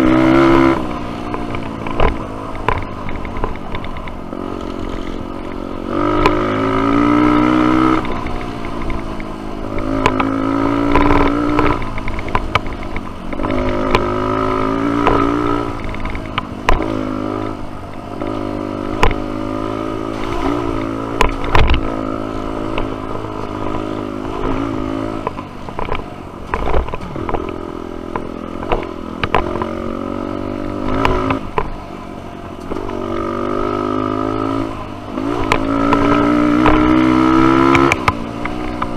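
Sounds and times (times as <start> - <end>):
dirt bike engine revving: 0.0 - 25.9, 26.5 - 31.7, 32.6 - 38.9
bike knocking and clattering: 7.8 - 17.0, 20.0 - 29.8.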